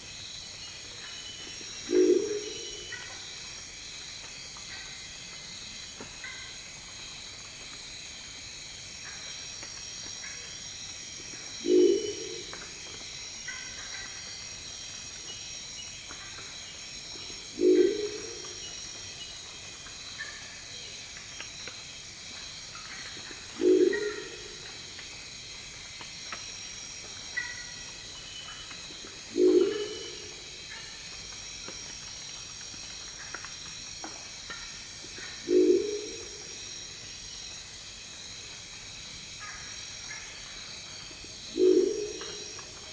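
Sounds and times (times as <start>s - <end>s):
owl giving deep croaking call: 11.6s - 12.4s, 17.6s - 18.5s, 29.4s - 30.2s, 35.5s - 36.3s, 41.6s - 42.4s.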